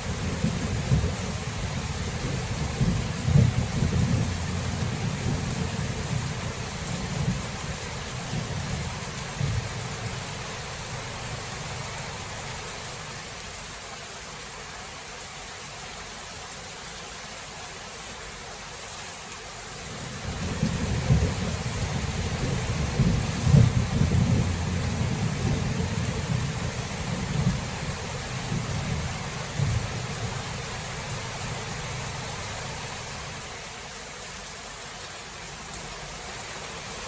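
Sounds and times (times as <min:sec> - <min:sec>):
steady rain hiss: 0:00.0 - 0:37.0
rolling thunder: 0:00.2 - 0:07.5, 0:20.3 - 0:30.4.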